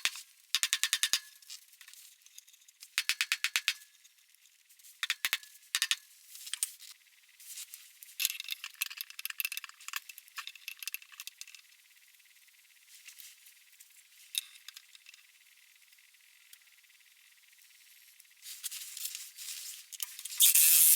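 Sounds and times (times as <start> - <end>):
light metallic clicks and rattles: 8.2 - 11.7.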